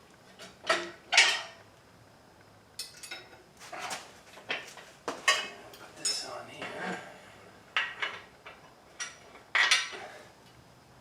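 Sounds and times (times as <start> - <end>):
metal tools clanking: 5.3 - 7.0.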